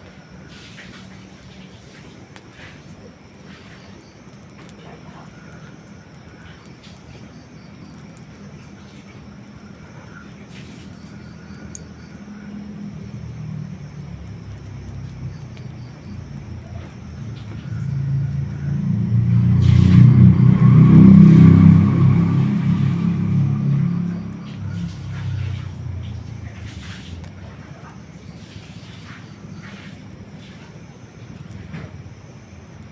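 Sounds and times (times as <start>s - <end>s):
campfire crackling: 0.0s - 32.9s
motor vehicle passing: 7.9s - 30.7s.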